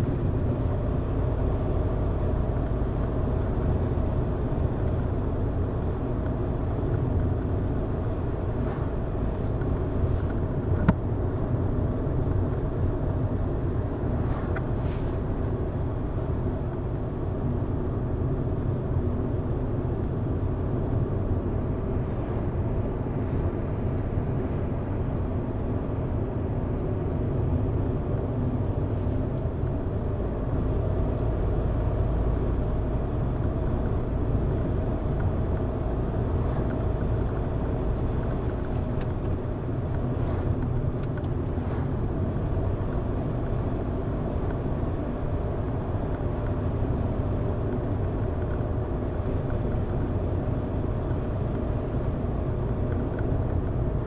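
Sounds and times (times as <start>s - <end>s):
car engine and tyres rumbling: 0.0s - 54.0s.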